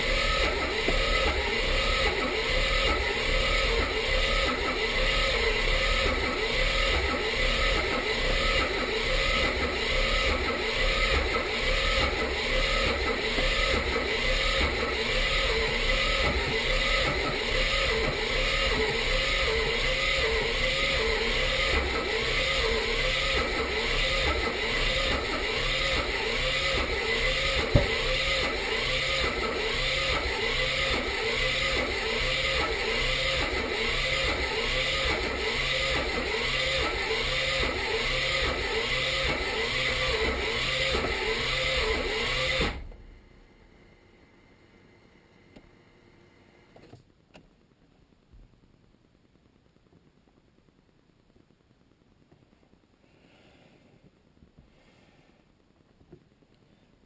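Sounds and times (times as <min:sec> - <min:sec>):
engine cranking on starter motor: 0:00.0 - 0:43.0.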